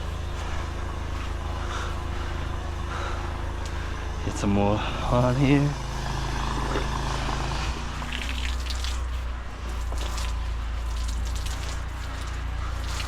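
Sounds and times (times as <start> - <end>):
engine running: 0.0 - 13.0
water splashing and dripping: 7.9 - 13.0.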